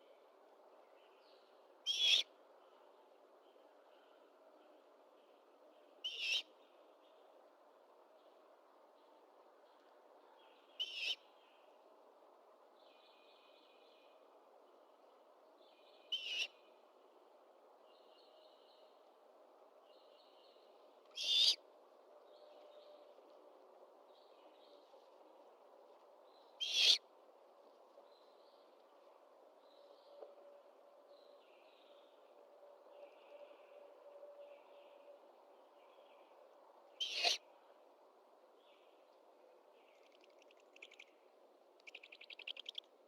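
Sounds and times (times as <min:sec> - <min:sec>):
low background hiss: 0:00.0 - 0:43.0
owl screeching calls: 0:01.9 - 0:02.2, 0:21.2 - 0:21.6, 0:26.6 - 0:27.0, 0:37.0 - 0:37.4.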